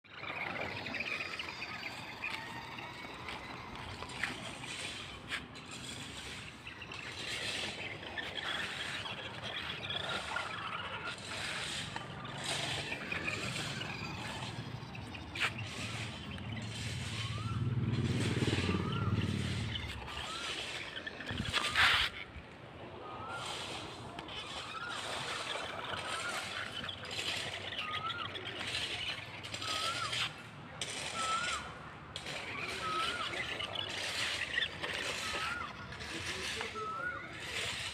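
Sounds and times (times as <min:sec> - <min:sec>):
toy truck motor and wheels: 0:00.1 - 0:37.9
bird whistled call: 0:11.7 - 0:22.2, 0:23.0 - 0:30.4, 0:31.1 - 0:37.9.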